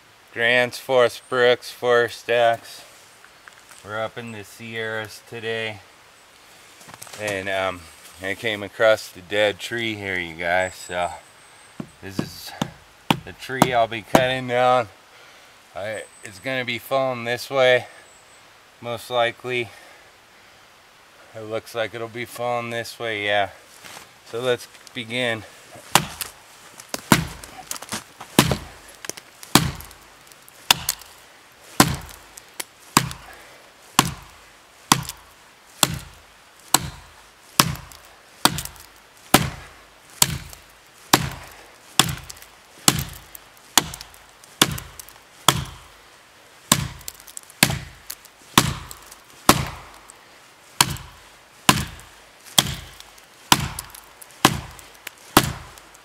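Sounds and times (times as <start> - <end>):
axe chopping wood: 11.8 - 14.4, 25.8 - 30.0, 30.7 - 31.1, 31.8 - 32.2, 32.9 - 33.4, 34.0 - 45.9, 46.7 - 50.0, 50.8 - 55.8.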